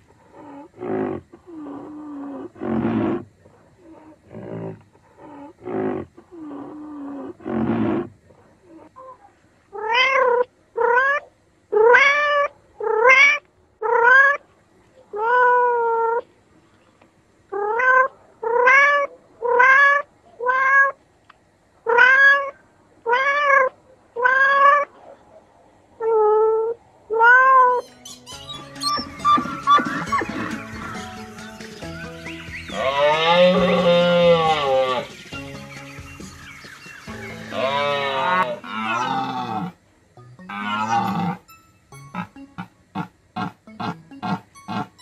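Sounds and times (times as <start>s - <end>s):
cat meowing: 9.8s - 11.2s, 17.6s - 21.0s, 21.9s - 24.9s, 26.0s - 27.8s.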